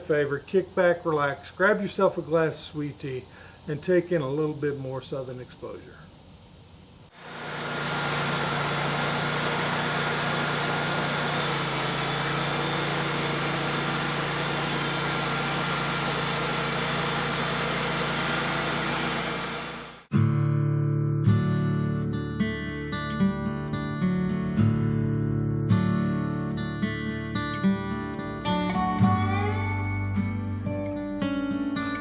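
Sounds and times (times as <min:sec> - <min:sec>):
engine running steadily: 0:07.1 - 0:20.1
strummed acoustic guitar music: 0:20.1 - 0:32.0.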